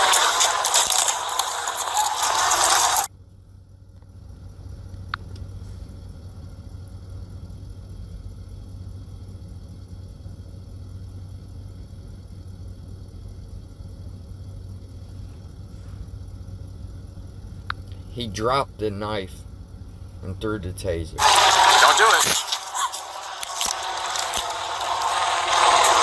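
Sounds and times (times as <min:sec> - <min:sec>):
idling vehicle engine hum: 0:00.0 - 0:26.0
loud rushing noise: 0:21.2 - 0:26.0.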